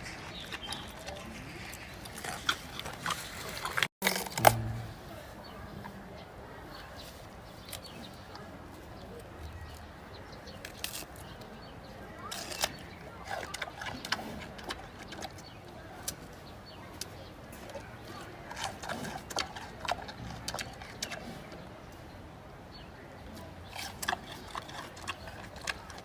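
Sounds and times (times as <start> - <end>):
panda chewing bamboo crunches: 0.0 - 4.8, 10.5 - 11.5, 12.2 - 16.3, 17.0 - 21.5, 23.6 - 26.0.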